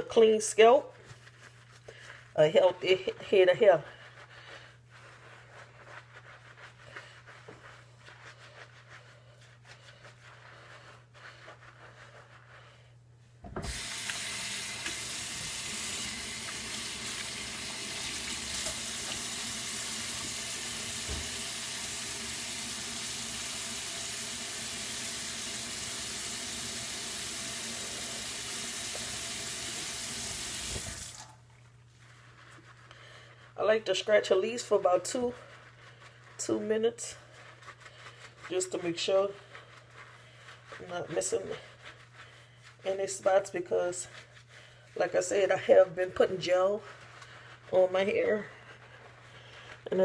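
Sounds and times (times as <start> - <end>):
tap water running into sink: 13.5 - 31.3.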